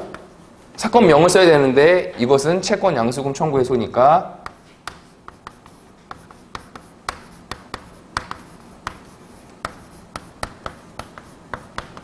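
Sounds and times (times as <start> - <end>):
pen scratching while writing: 4.5 - 12.0.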